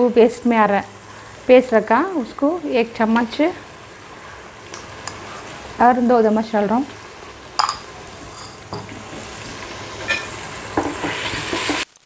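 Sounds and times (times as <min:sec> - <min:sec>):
vegetables sizzling in oil: 0:00.0 - 0:12.0
spoon scraping against pot: 0:07.6 - 0:08.9, 0:10.0 - 0:11.8.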